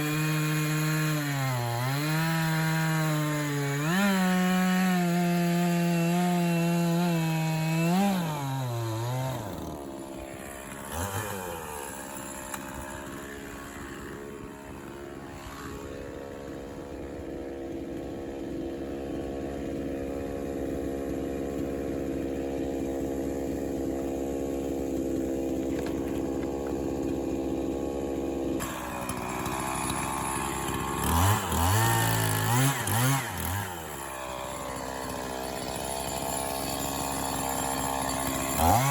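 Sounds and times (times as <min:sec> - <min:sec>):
chainsaw cutting log: 0:00.0 - 0:38.9
chainsaw idling: 0:00.0 - 0:38.9
chainsaw throttle blips: 0:00.0 - 0:38.9.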